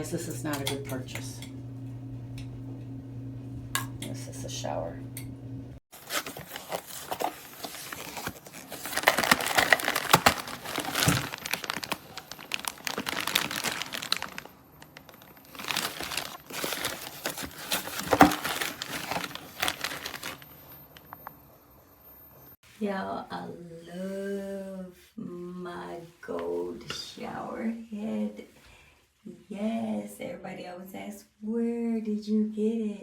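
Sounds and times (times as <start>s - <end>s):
crinkling and clattering handling noise: 5.9s - 21.4s.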